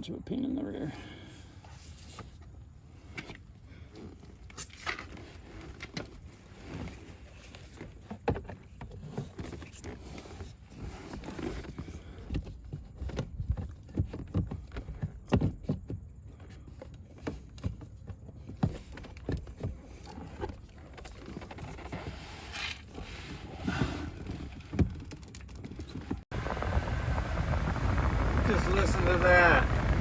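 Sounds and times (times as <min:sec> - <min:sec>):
plastic knocks and rattles: 0:11.5 - 0:21.9.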